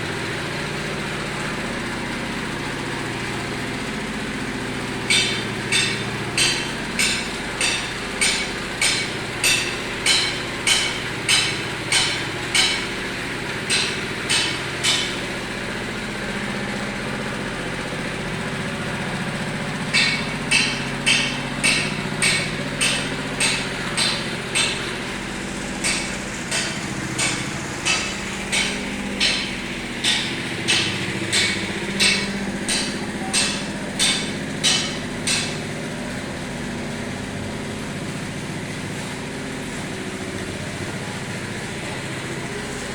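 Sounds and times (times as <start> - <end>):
engine hum: 0.0 - 42.9
sharp knocks on concrete: 5.1 - 13.0, 13.7 - 15.3, 19.9 - 25.1, 25.7 - 35.8.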